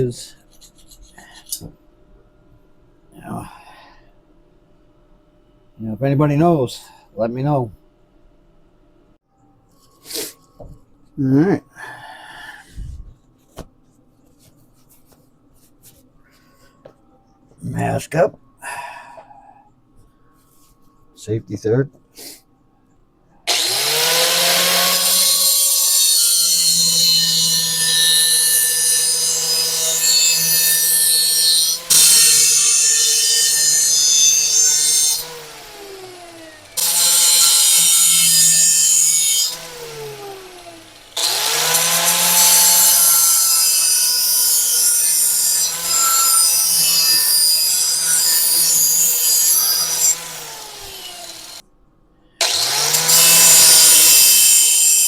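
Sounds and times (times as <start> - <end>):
electric grinder on steel: 23.5 - 51.6, 52.4 - 55.0.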